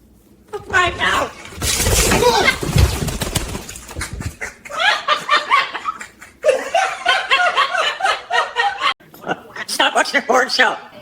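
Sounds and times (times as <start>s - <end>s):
high-pitched cackling laughter: 3.9s - 9.0s.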